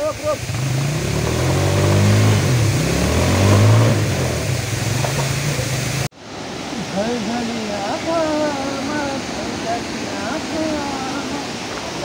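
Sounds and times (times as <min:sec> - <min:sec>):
motorcycle engine revving: 0:00.0 - 0:06.1.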